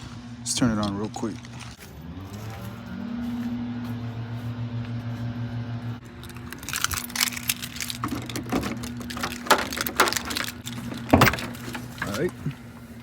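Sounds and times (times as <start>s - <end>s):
keys jangling: 6.1s - 12.2s
clicks rattles and knocks: 6.2s - 12.4s.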